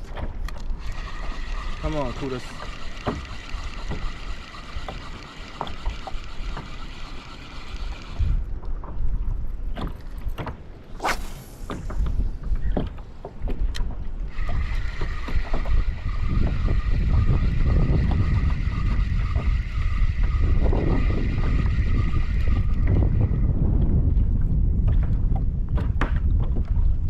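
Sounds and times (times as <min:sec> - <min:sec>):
water slapping against hull: 0:00.0 - 0:20.7
wind gusting against microphone: 0:05.7 - 0:27.0.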